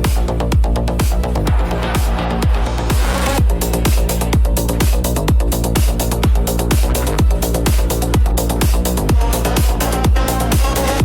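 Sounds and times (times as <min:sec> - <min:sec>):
techno kick drum: 0:00.0 - 0:11.0.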